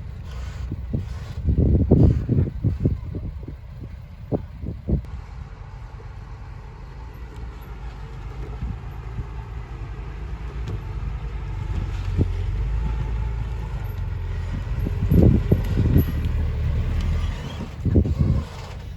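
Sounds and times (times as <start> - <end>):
heavy machinery diesel engine rumbling: 0.0 - 18.9.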